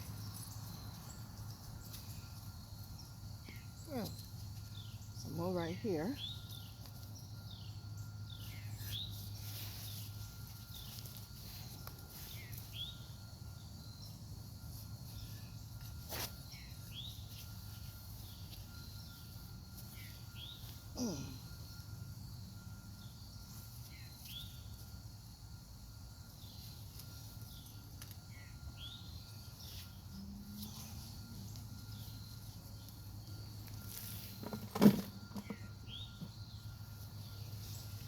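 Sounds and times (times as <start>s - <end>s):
high insect drone: 0.0s - 38.0s
bird chirping: 35.3s - 38.0s.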